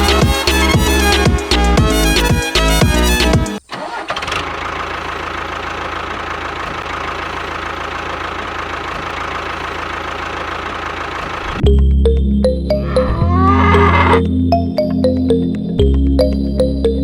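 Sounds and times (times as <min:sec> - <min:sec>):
tractor engine idling: 0:03.6 - 0:11.8.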